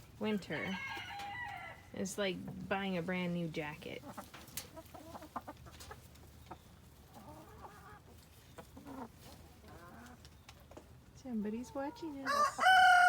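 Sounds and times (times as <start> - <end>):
hens clucking softly: 3.9 - 11.0.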